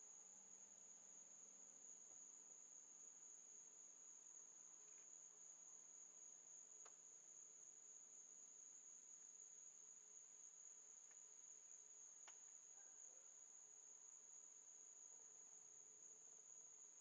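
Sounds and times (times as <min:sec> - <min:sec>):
faint ticks: 0:04.8 - 0:05.2, 0:06.8 - 0:07.0, 0:11.0 - 0:11.3, 0:12.2 - 0:12.9.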